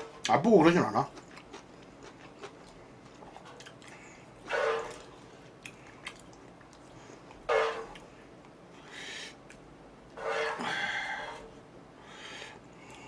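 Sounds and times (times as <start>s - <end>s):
chewing mouth clicks: 1.2s - 4.0s, 5.6s - 7.4s.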